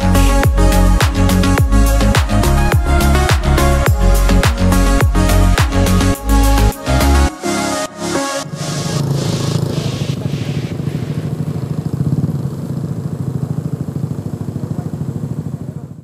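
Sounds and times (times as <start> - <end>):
scooter engine running: 0.0 - 7.3, 8.1 - 16.0
high hiss: 8.5 - 11.8.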